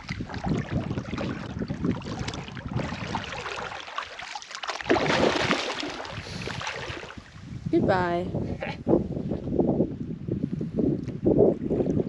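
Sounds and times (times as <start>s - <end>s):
wind on microphone: 0.0s - 3.9s, 4.9s - 12.0s
water splashing around kayak: 0.0s - 7.8s, 11.0s - 12.0s.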